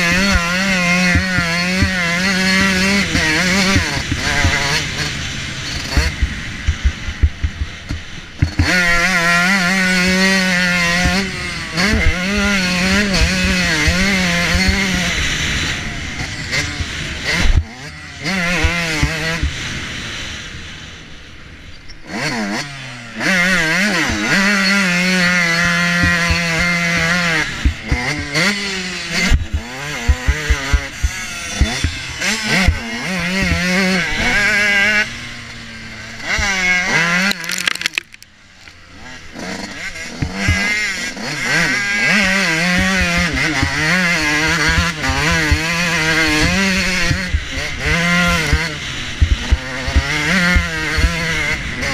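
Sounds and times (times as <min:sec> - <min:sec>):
motocross bike engine revving: 0:00.0 - 0:51.9
bike knocks and rattles: 0:05.9 - 0:08.8, 0:29.2 - 0:32.8, 0:42.6 - 0:45.7, 0:48.4 - 0:51.1.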